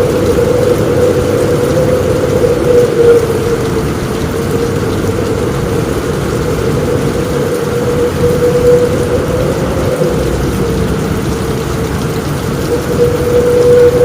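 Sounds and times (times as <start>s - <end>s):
heavy rain on a roof: 0.0s - 14.0s
low rumble: 0.0s - 14.0s.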